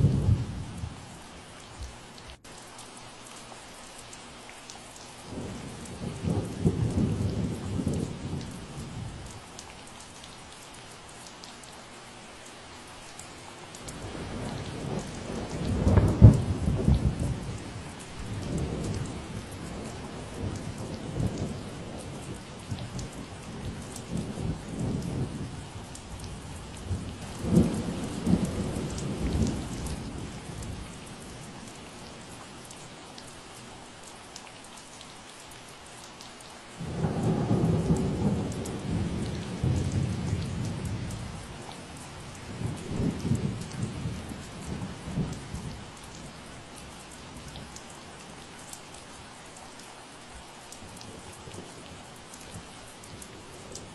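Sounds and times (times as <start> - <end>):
thunder rumbling: 0.0 - 1.0, 26.2 - 31.4, 36.8 - 46.2
rain falling: 0.0 - 53.9.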